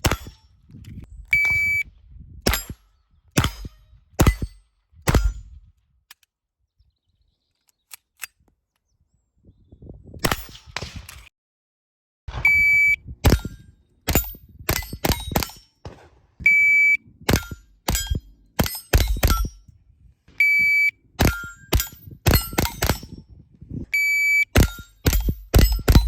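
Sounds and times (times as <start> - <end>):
gunshots: 0.0 - 0.4, 3.4 - 5.4, 12.3 - 16.4, 21.2 - 23.2, 24.6 - 26.0
shot timer beeps: 1.3 - 1.8, 12.4 - 13.0, 20.4 - 21.6, 23.9 - 24.6
steel target plates ringing: 17.3 - 19.7, 20.4 - 23.2, 24.0 - 26.0.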